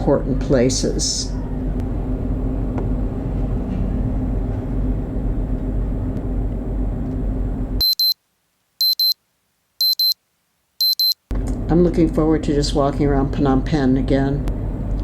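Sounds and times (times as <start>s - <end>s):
high electronic double beep: 7.8s - 8.2s, 8.8s - 9.2s, 9.8s - 10.2s, 10.8s - 11.2s.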